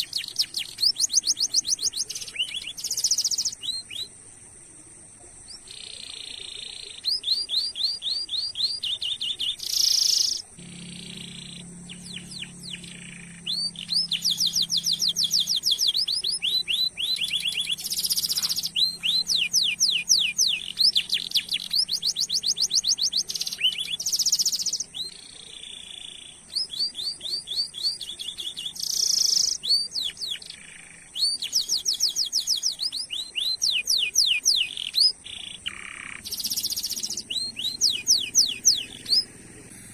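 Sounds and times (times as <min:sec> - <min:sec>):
canary singing: 0:00.0 - 0:04.2, 0:05.5 - 0:39.9.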